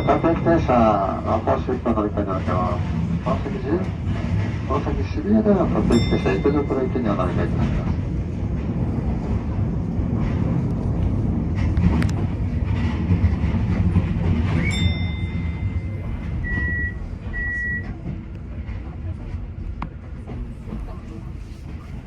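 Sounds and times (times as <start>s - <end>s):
train rumbling at speed: 0.0s - 22.0s
short beeps: 16.4s - 17.9s.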